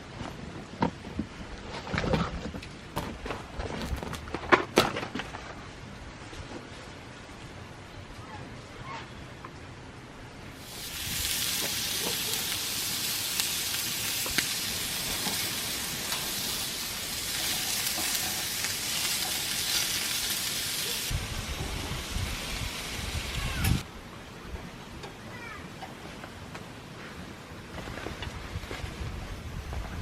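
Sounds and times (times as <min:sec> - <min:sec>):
food sizzling in a pan: 0:10.6 - 0:23.8.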